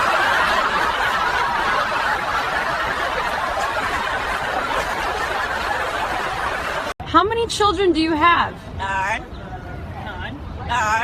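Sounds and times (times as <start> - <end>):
people laughing: 0.0 - 7.0.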